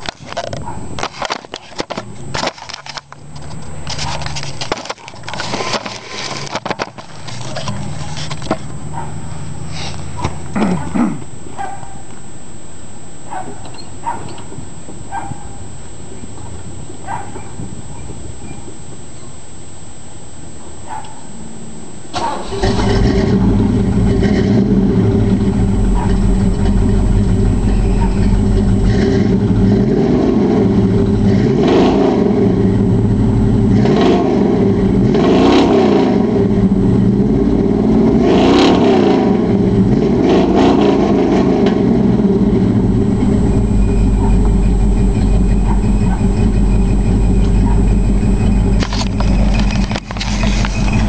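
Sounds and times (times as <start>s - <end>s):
vtwo engine revving and idling: 22.1s - 51.0s.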